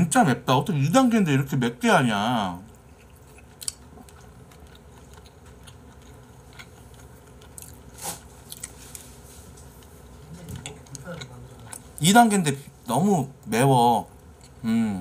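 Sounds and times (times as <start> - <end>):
man chewing: 2.6 - 12.0, 14.1 - 14.8.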